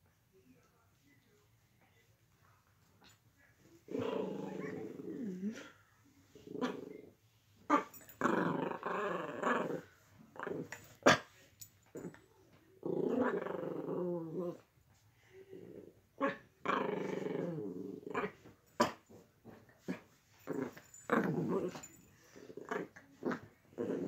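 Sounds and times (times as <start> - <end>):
dog growling: 3.9 - 5.8, 7.7 - 11.3, 12.8 - 14.6, 15.5 - 19.1, 19.9 - 24.0.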